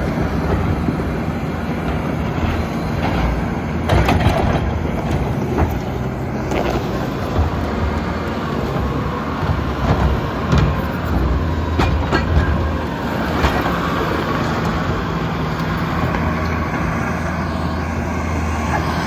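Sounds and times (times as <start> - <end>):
diesel engine running: 0.0 - 19.0
metallic clanks and knocks: 11.7 - 13.8.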